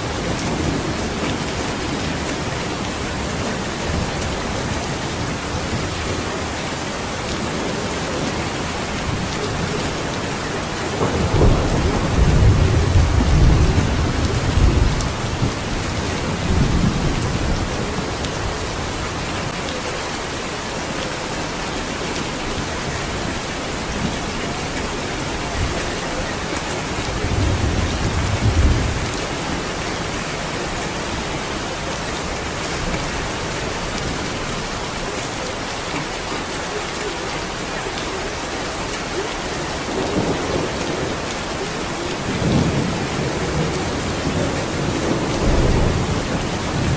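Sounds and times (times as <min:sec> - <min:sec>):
heavy rain: 0:00.0 - 0:46.9
low rolls of thunder: 0:09.1 - 0:18.7, 0:24.9 - 0:29.7, 0:42.1 - 0:46.9.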